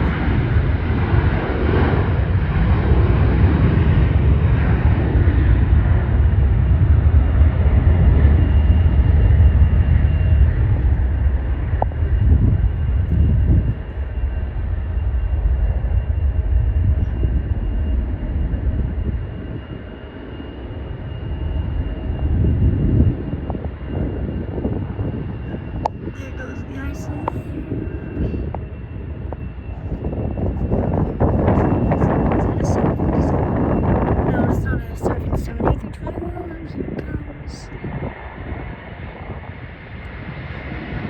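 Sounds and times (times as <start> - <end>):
jet engines rumbling: 0.0 - 41.0
faint steady whine: 8.3 - 37.9.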